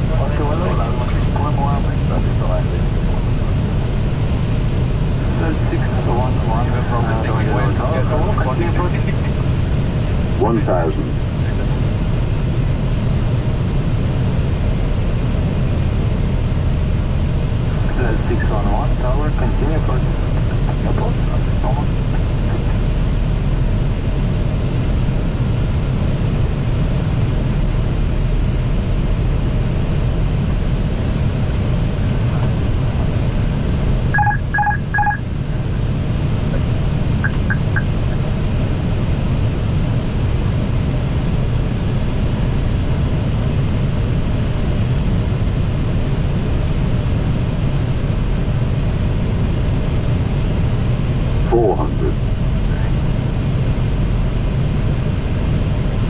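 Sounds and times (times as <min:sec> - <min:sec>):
cockpit airflow and engine noise: 0:00.0 - 0:56.0
short electronic beeps: 0:34.2 - 0:35.2, 0:37.2 - 0:38.2.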